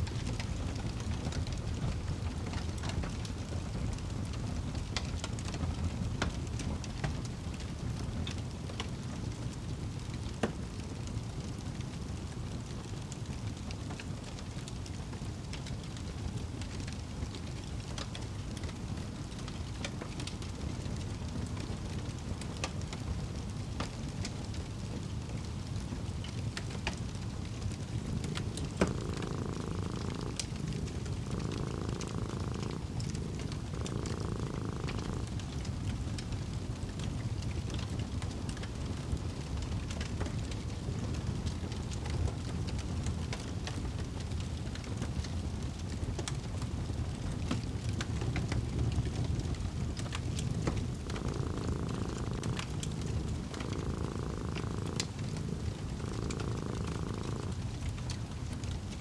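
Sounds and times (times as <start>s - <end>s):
fireplace fire crackling: 0.0s - 59.0s.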